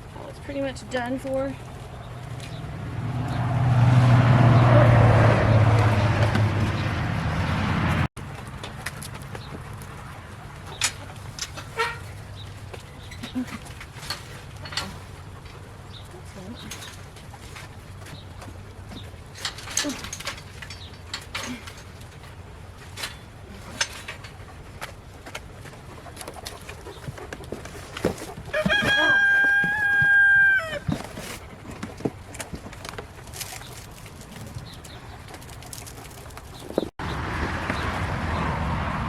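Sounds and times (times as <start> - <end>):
rooster crowing: 28.5 - 30.9.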